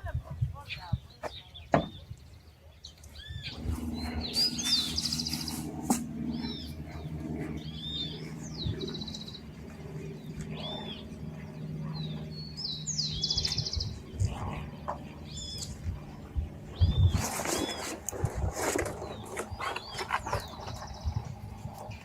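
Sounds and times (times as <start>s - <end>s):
songbirds chirping: 0.0s - 22.0s
high bird trill: 3.2s - 9.5s.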